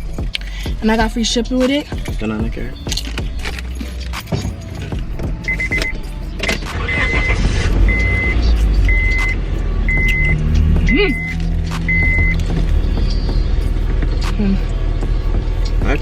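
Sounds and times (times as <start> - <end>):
low steady rumble: 0.0 - 16.0
car warning chime beeping: 3.6 - 13.9.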